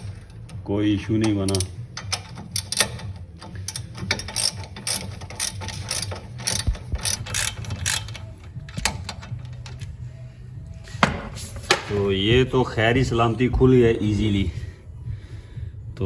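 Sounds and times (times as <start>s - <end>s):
ratchet wrench clicking: 1.2s - 9.8s.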